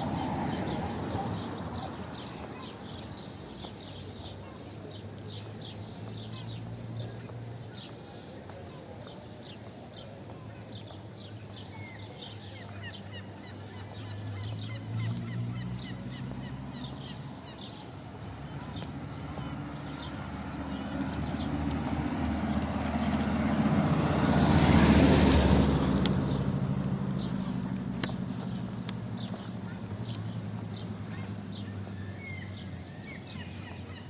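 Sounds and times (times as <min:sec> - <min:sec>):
vehicle engine passing by: 0:00.0 - 0:02.9, 0:14.2 - 0:34.0
small birds chirping: 0:00.1 - 0:34.0.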